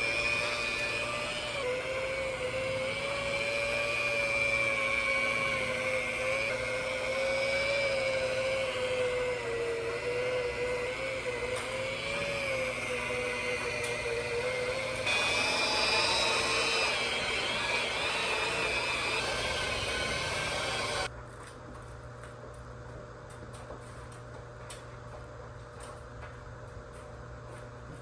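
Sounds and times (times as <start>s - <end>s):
electric polisher motor whine: 0.0s - 21.1s.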